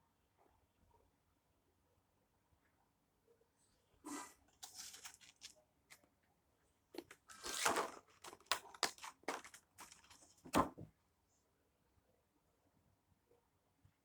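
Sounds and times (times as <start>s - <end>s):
packaging tearing and crinkling: 4.6s - 5.5s, 7.0s - 10.7s.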